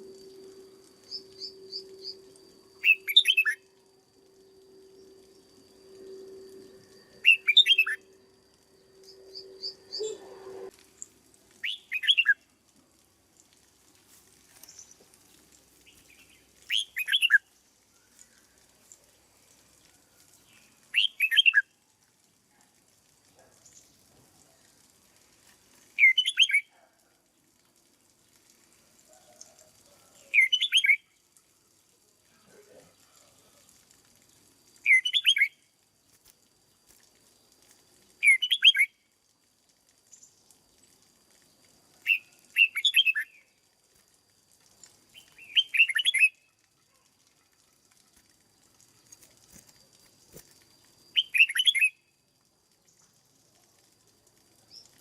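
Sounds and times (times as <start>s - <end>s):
low steady hum: 0.0s - 11.6s
bird singing short phrases: 2.8s - 3.6s, 7.2s - 8.0s, 9.4s - 10.5s, 11.6s - 12.4s, 16.1s - 17.4s, 20.9s - 21.6s, 34.8s - 35.6s, 38.2s - 38.9s, 42.1s - 43.4s, 45.2s - 46.5s, 51.2s - 52.0s.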